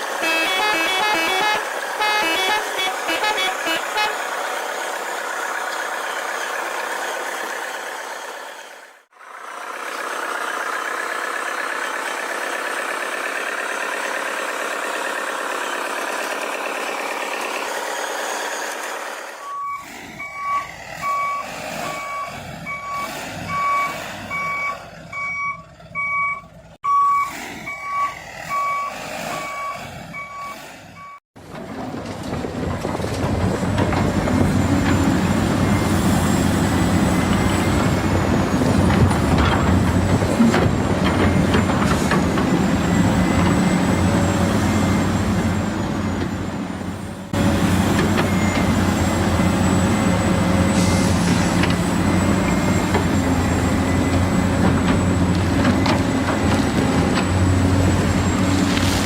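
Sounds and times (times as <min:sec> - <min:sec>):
toy truck reversing beeper: 0:00.0 - 0:04.2, 0:19.3 - 0:31.2.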